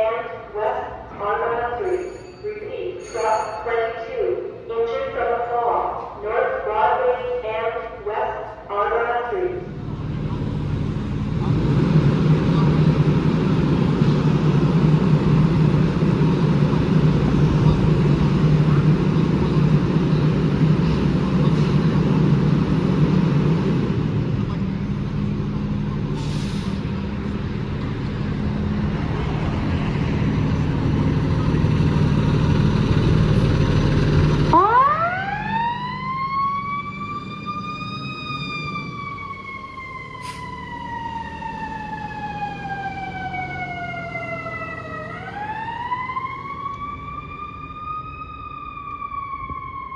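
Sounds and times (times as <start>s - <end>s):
fire truck engine running: 9.6s - 49.9s
mechanical siren wailing: 34.5s - 49.9s.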